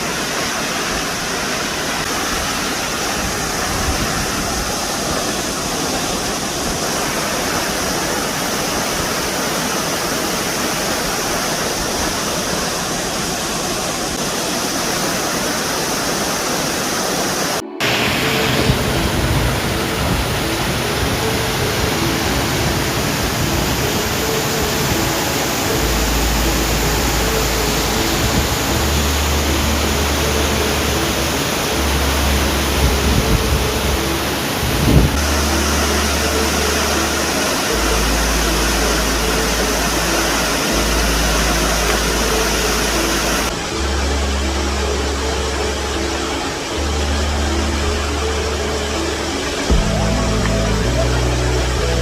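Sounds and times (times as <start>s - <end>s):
waterfall rushing: 0.0s - 52.0s
slow bass line music: 17.6s - 52.0s.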